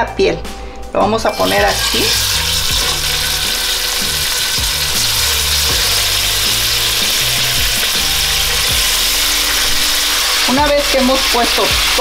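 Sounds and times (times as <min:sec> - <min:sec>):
chicken sizzling in hot oil: 0:01.3 - 0:12.0.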